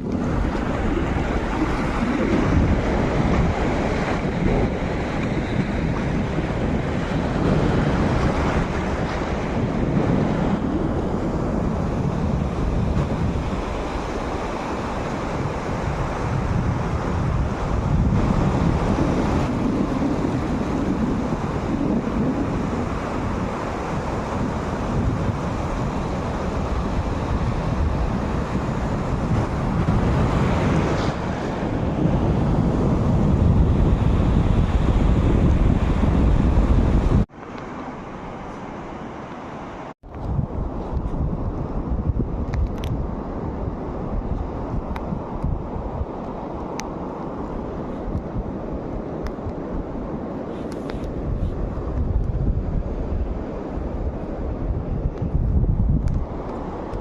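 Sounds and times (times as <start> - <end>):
wind buffeting microphone: 0.0 - 37.4, 39.8 - 57.0
sea waves washing onto beach: 0.0 - 57.0.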